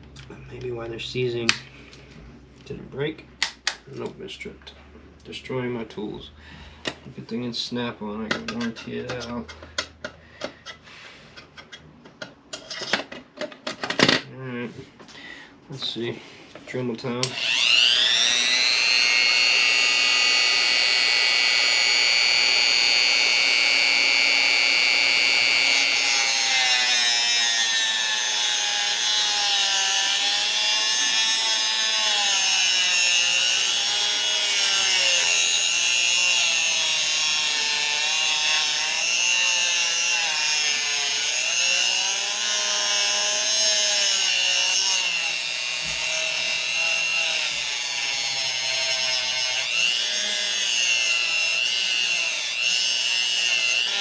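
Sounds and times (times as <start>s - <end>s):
rotary tool cutting metal bolt: 17.2s - 54.0s.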